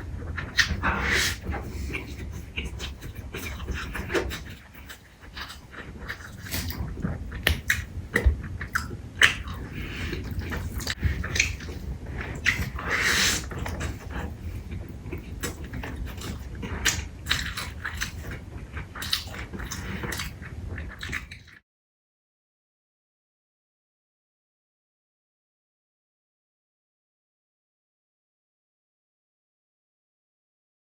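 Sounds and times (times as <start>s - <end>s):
mouth clicks and smacks: 0.4s - 21.6s
person chewing and biting: 0.5s - 14.4s, 15.0s - 21.6s.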